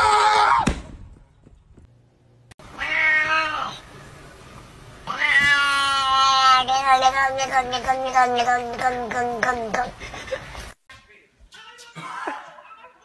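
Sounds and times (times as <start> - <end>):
cat meowing: 2.7 - 3.8, 5.0 - 9.8.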